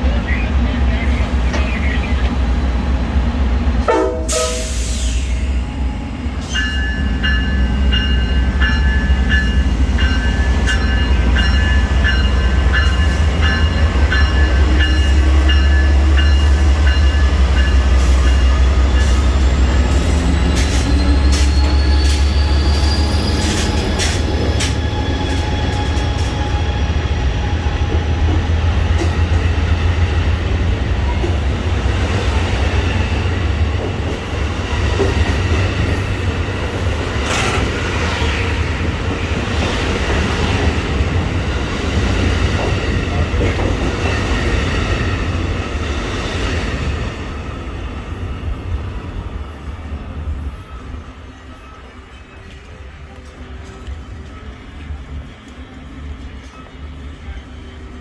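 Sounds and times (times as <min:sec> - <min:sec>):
train rumbling: 0:00.0 - 0:58.0
high wheel squeals: 0:18.8 - 0:25.8.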